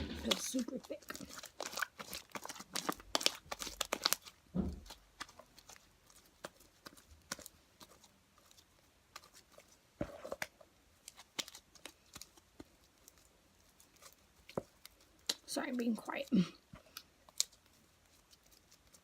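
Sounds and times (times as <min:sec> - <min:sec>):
soft thump: 0:04.5 - 0:04.9.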